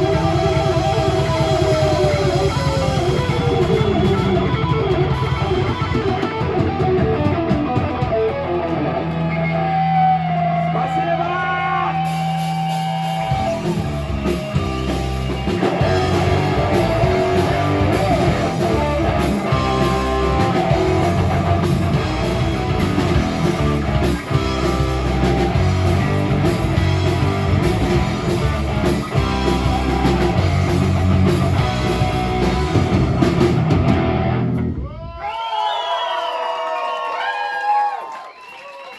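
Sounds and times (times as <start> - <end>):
drums and cymbals beat: 0.0 - 8.8, 11.9 - 34.2
live rock band playing: 0.0 - 34.9.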